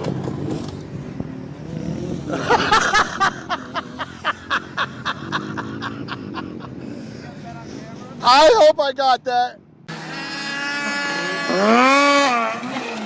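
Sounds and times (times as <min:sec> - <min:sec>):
person laughing: 0:02.3 - 0:06.9.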